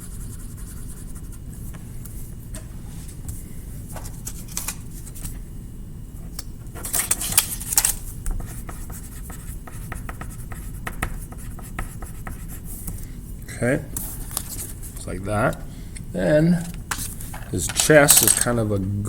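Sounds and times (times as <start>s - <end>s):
coloring strokes scratching on paper: 0.0s - 1.6s, 8.4s - 12.8s.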